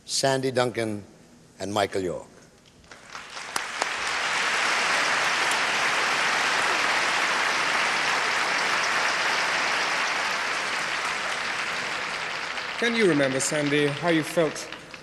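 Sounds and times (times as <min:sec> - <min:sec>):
audience applauding: 0:02.9 - 0:15.0.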